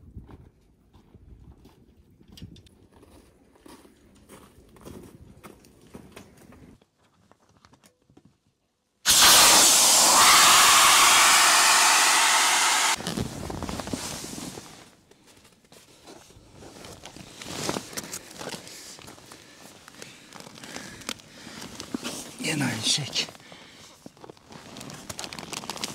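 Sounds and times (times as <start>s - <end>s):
rushing hiss of blown air: 9.1s - 13.0s
rustling: 13.0s - 19.2s.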